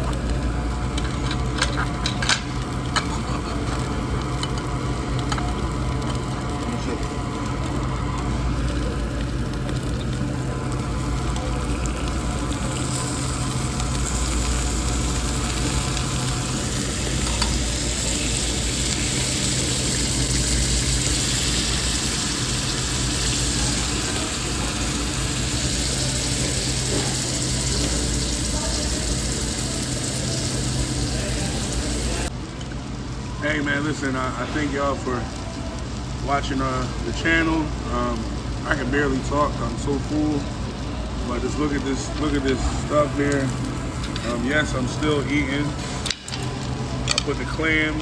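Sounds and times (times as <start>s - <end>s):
constant low hum: 0.0s - 33.5s
food sizzling on a grill: 0.0s - 48.0s.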